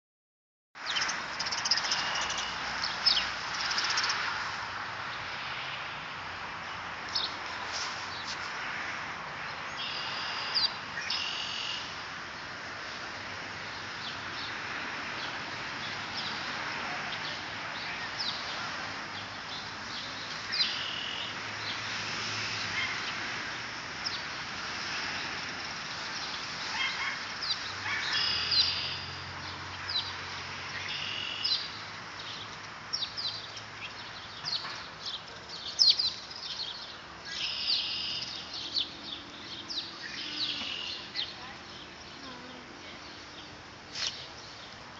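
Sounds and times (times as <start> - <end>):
birds chirping: 0.8 - 4.2, 25.1 - 44.9.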